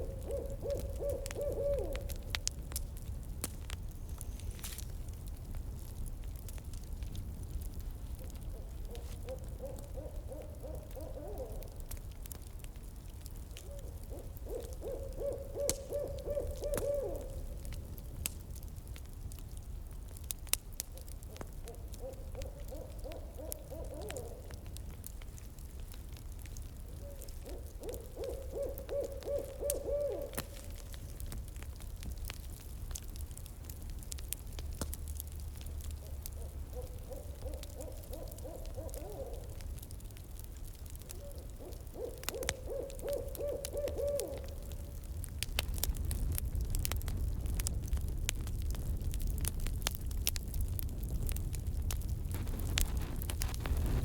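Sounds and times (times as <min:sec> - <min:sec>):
owl hooting: 0:00.0 - 0:02.4, 0:08.2 - 0:11.8, 0:13.6 - 0:17.6, 0:21.3 - 0:24.6, 0:26.9 - 0:31.0, 0:36.0 - 0:39.8, 0:41.0 - 0:44.9
campfire crackling and popping: 0:00.0 - 0:54.0.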